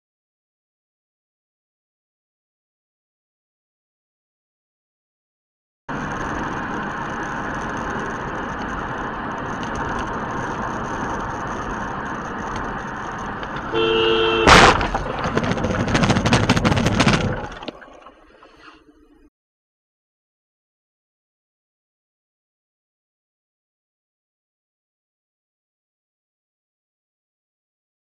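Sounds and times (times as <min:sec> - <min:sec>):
road and engine noise: 0:05.9 - 0:19.3
car horn blaring: 0:13.6 - 0:14.8
collision impact: 0:14.4 - 0:17.6
crunching and scraping: 0:14.4 - 0:18.1.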